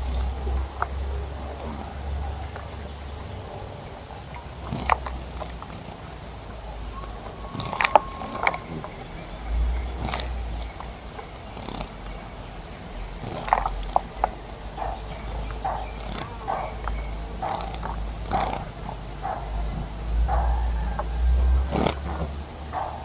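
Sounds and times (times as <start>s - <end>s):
birds chirping: 0.0s - 23.0s
high bird call: 6.7s - 10.2s, 14.7s - 18.4s.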